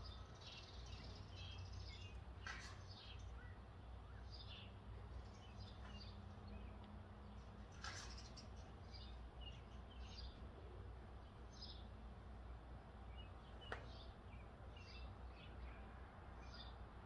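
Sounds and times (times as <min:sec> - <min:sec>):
faint songbird chirps: 0:00.0 - 0:17.0.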